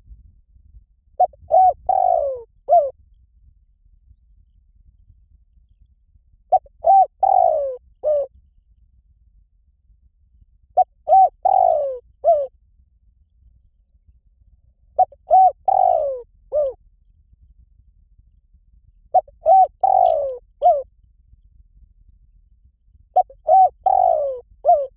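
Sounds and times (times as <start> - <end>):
dove cooing: 1.2 - 2.9, 6.5 - 8.3, 10.8 - 12.5, 15.0 - 16.8, 19.2 - 20.8, 23.2 - 24.9.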